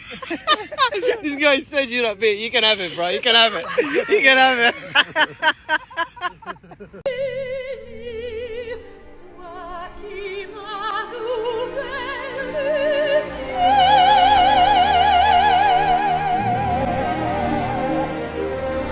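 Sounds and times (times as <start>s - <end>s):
steady musical accompaniment: 7.0s - 18.9s
opera singer with vibrato: 7.1s - 18.4s.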